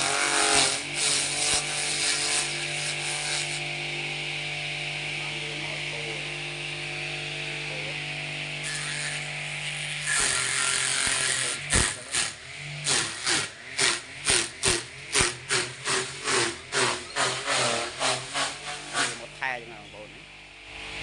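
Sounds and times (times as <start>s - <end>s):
machine hum: 0.0s - 21.0s
rhythmic sharp strokes: 10.0s - 19.4s.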